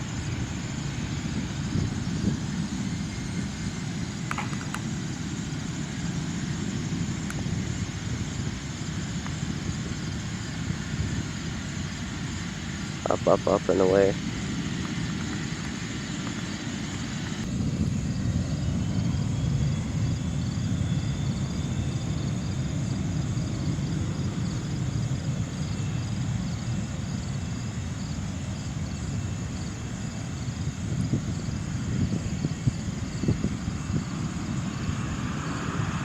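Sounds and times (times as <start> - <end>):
jet engines rumbling: 0.0 - 36.0.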